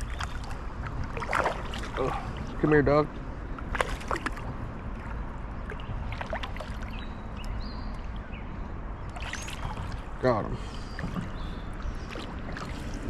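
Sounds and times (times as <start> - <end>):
fish splashing: 0.0 - 2.4, 3.6 - 7.0, 9.1 - 10.2.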